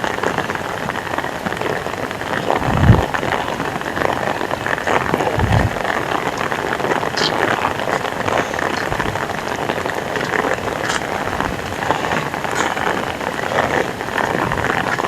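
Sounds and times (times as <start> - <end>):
heavy rain hissing: 0.0 - 15.0
raindrops striking close by: 0.0 - 15.0.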